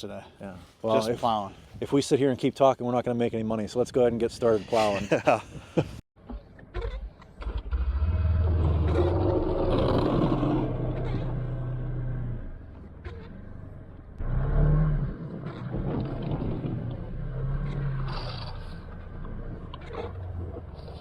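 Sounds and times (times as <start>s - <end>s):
utility vehicle engine revving: 7.4s - 21.0s.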